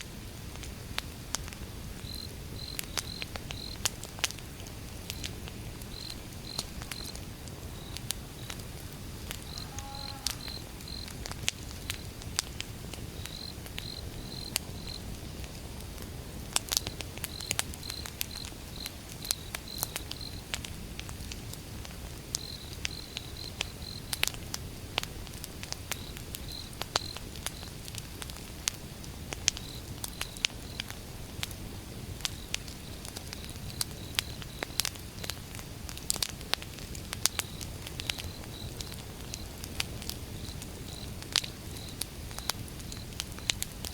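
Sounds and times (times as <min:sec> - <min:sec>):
wood fire crackling and popping: 0:00.0 - 0:43.9
insect chirping: 0:02.0 - 0:03.8, 0:05.9 - 0:08.6, 0:09.4 - 0:11.1, 0:13.2 - 0:15.0, 0:37.4 - 0:39.6, 0:40.3 - 0:43.6.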